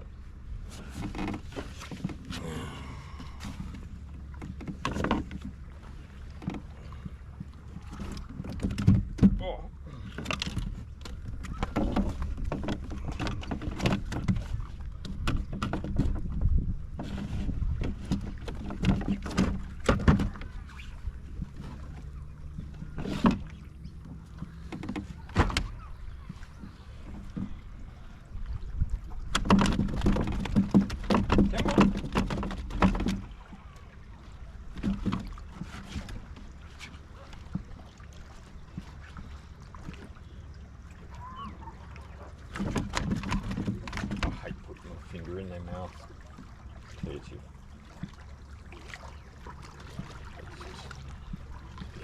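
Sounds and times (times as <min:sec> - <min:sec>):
low rumble of water and wind: 0:00.0 - 0:52.0
knocks and clatter on kayak: 0:00.6 - 0:52.0
knocks against plastic kayak hull: 0:29.3 - 0:33.3.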